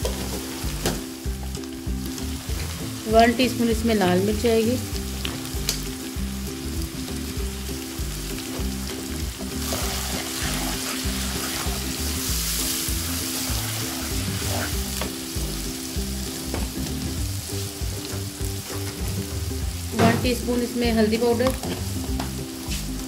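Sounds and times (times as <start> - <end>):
wooden spatula scraping wok: 0.0 - 3.0, 8.4 - 20.5
oil sizzling in a wok: 0.0 - 23.0.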